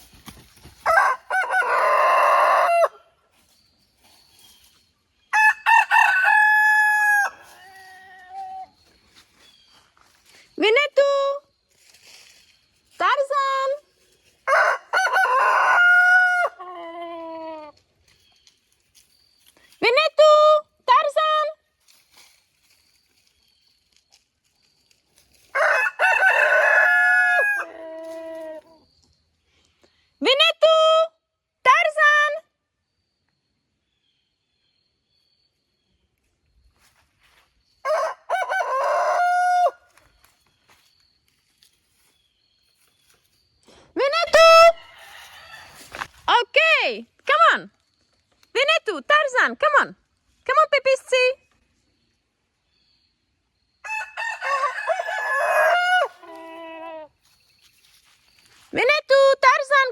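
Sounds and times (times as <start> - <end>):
distant rooster crowing: 0.8 - 3.1, 5.3 - 7.6, 14.5 - 16.6, 25.5 - 28.4, 37.8 - 40.0, 44.8 - 46.0, 53.8 - 56.4
rooster crowing: 0.8 - 3.1, 5.3 - 8.0, 14.5 - 17.0, 25.5 - 28.6, 37.8 - 40.0, 44.8 - 45.9, 53.8 - 57.1.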